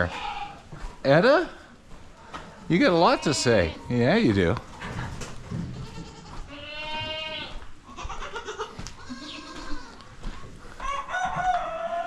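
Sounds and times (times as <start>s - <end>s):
goats bleating: 0.0s - 0.8s, 2.7s - 4.3s, 5.5s - 10.2s.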